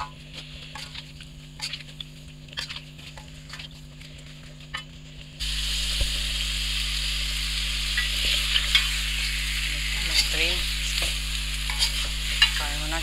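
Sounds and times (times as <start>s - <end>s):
chicken sizzling in butter: 0.0s - 13.0s
metal spoon scraping pan: 11.6s - 13.0s.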